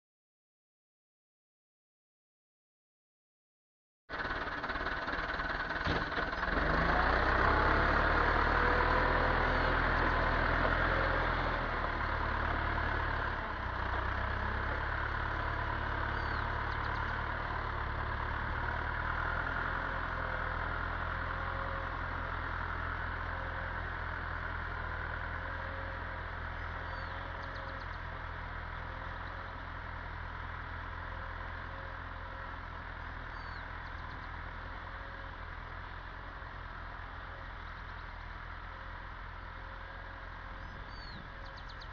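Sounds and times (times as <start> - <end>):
tractor diesel engine running: 4.1 - 41.9.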